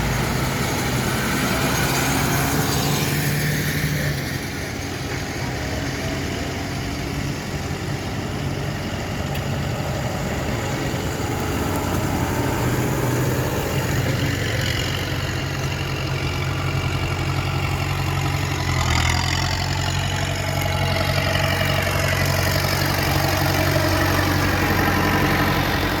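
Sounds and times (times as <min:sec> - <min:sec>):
tractor engines droning: 0:00.0 - 0:26.0.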